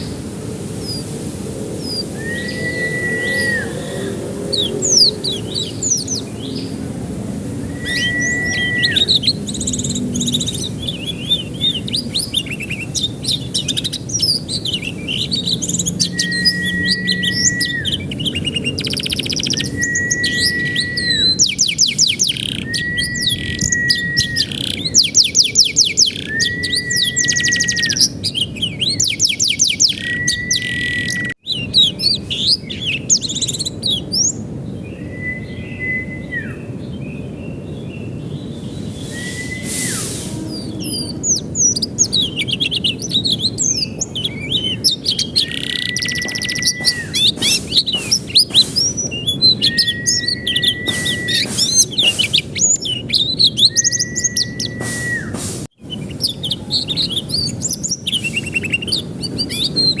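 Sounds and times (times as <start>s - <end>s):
canary singing with trills: 1.7s - 37.0s, 37.6s - 60.0s
flat whistled note: 39.0s - 40.8s, 54.0s - 55.4s.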